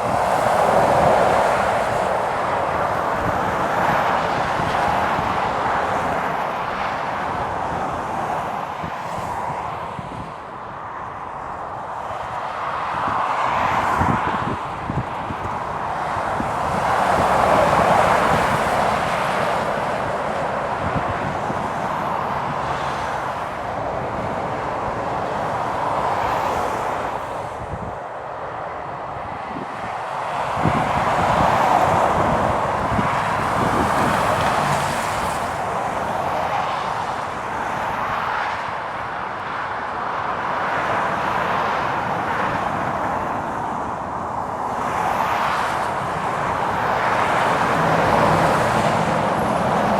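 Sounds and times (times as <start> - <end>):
wind: 0.0 - 49.9
heavy trucks passing: 13.0 - 49.9
tyres hissing on wet road: 24.4 - 27.6, 30.4 - 38.6, 44.9 - 49.9.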